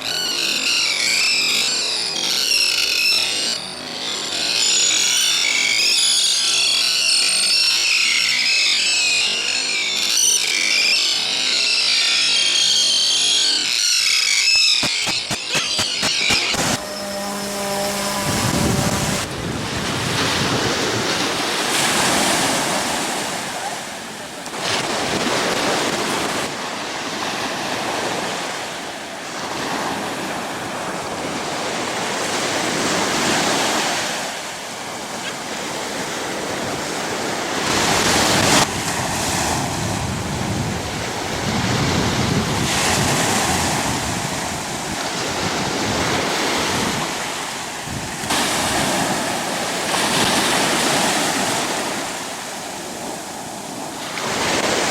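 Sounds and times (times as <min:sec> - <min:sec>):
surf breaking on a beach: 0:14.8 - 0:54.9
wind buffeting microphone: 0:16.4 - 0:21.4, 0:37.6 - 0:52.1.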